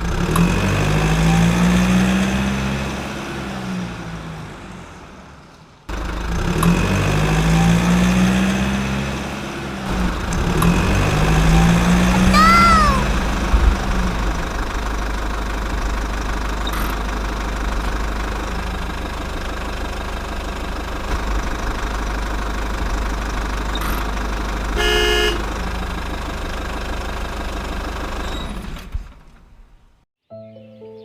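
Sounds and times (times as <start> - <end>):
tractor engine running: 5.9 - 12.2, 13.0 - 29.6
short horn toot: 24.8 - 25.4.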